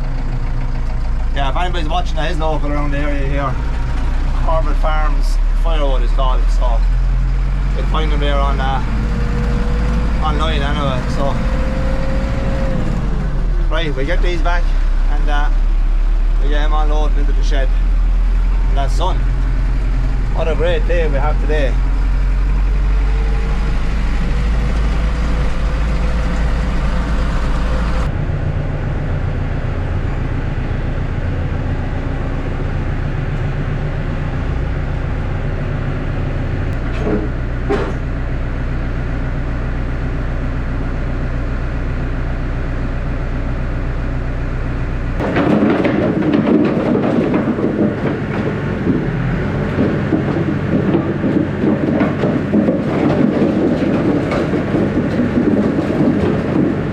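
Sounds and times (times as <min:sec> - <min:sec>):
tractor engine running: 0:00.0 - 0:56.9
rattling clatter: 0:45.2 - 0:56.9.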